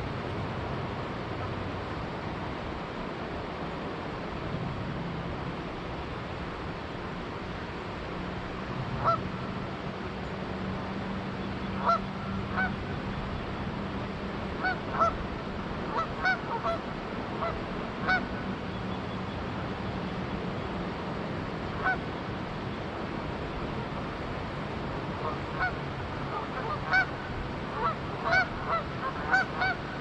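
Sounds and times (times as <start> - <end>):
river water flowing: 0.0 - 30.0
geese honking: 11.8 - 12.8, 14.6 - 15.2, 15.9 - 16.8, 17.4 - 18.2, 21.8 - 22.0, 25.2 - 29.8.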